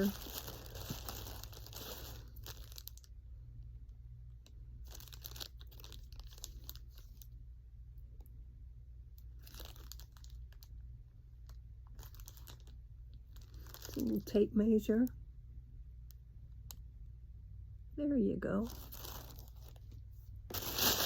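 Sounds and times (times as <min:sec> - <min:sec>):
packaging crinkling: 0:00.0 - 0:03.1, 0:04.8 - 0:07.4, 0:09.2 - 0:10.7, 0:11.4 - 0:14.4, 0:18.6 - 0:21.0.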